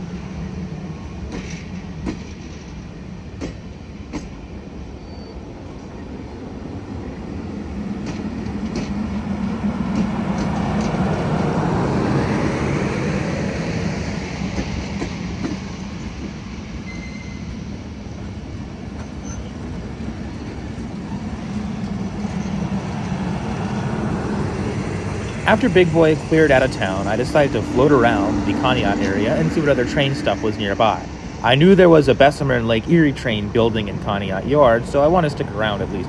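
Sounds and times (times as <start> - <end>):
train passing: 0.0 - 36.0.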